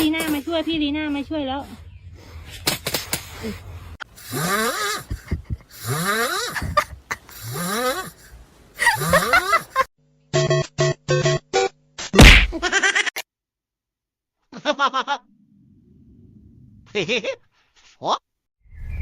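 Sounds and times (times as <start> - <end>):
animal snoring: 4.2 - 5.1, 5.7 - 6.8, 7.4 - 8.3.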